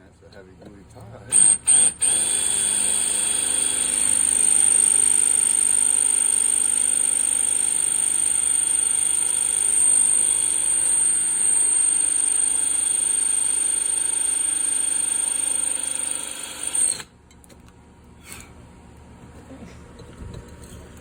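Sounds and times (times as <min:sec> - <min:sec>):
electric drill whining: 0:01.3 - 0:17.1.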